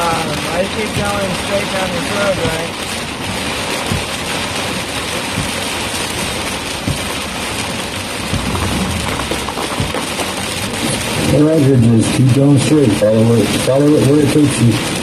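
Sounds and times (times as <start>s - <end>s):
rain hitting a car: 0.0s - 15.0s
road noise: 0.0s - 15.0s
low thump: 3.8s - 4.2s, 5.3s - 7.4s, 8.2s - 11.0s.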